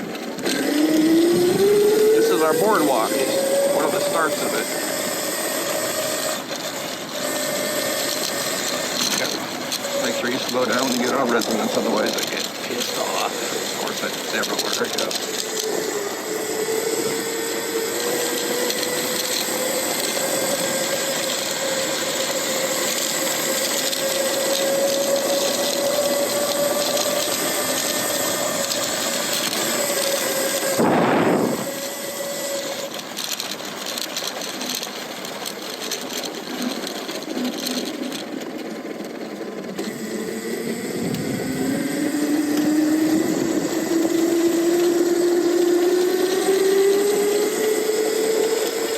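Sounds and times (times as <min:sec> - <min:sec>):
tyre noise: 0:00.0 - 0:34.9
electric motor whining: 0:00.0 - 0:48.9
wind noise: 0:30.6 - 0:31.9.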